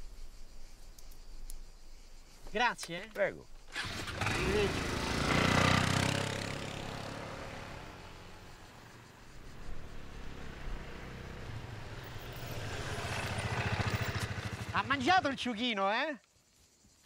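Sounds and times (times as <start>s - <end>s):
car engine pulling away: 3.7s - 14.7s
vehicle engine approaching: 3.8s - 15.1s.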